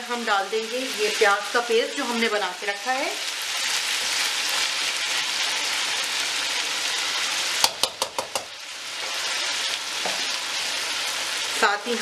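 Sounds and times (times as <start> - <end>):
chicken sizzling in hot oil: 0.0 - 12.0
sharp utensil taps: 7.6 - 8.5.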